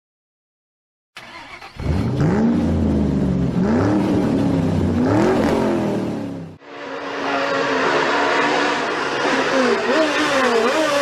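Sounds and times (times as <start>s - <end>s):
rally car engine accelerating: 1.2s - 11.0s.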